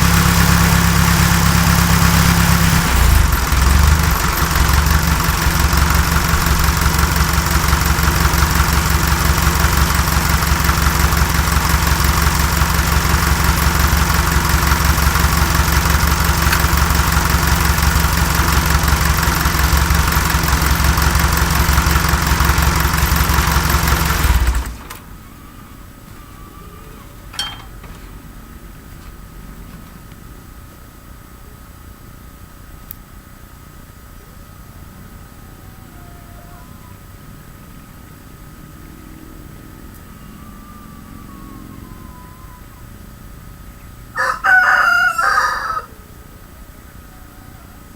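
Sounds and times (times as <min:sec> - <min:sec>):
tractor engine running: 0:00.0 - 0:25.2, 0:27.2 - 0:30.7.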